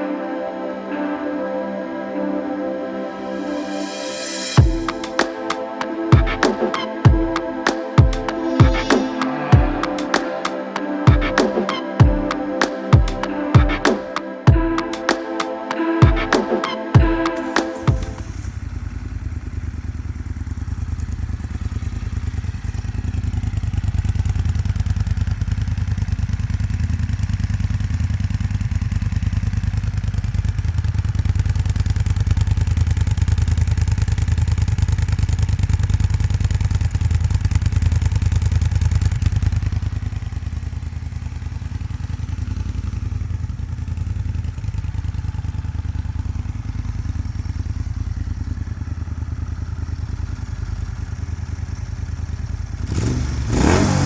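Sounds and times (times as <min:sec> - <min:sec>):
motorcycle engine idling: 0:17.8 - 0:54.0.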